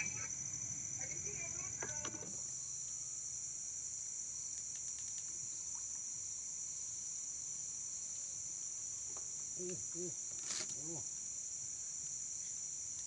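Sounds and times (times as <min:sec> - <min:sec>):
night insects chirring: 0:00.0 - 0:13.0
faint ticks: 0:04.4 - 0:06.0, 0:12.0 - 0:13.0.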